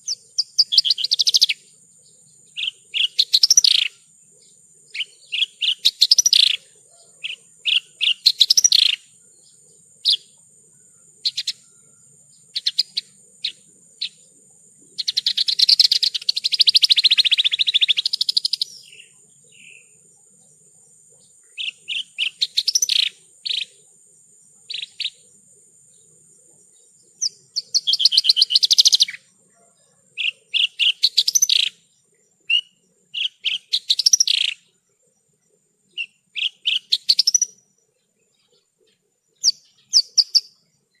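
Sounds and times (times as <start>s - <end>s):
bird chirping and trilling: 2.5s - 4.0s, 4.9s - 9.0s, 21.6s - 23.8s, 27.2s - 29.2s, 30.2s - 31.8s, 32.5s - 34.7s, 36.0s - 37.6s, 39.4s - 40.6s.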